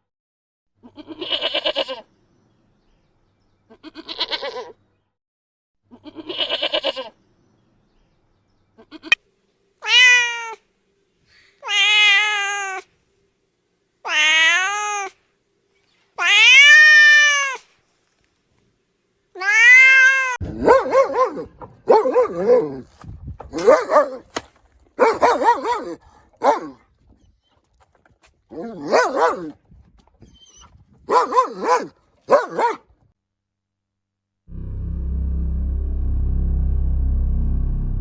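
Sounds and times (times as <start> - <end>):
cat meowing: 19.4 - 21.3.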